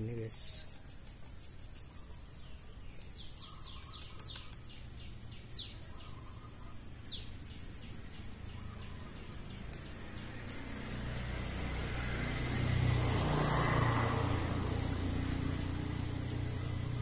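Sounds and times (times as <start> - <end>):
bird chick chirping: 1.6 - 10.2.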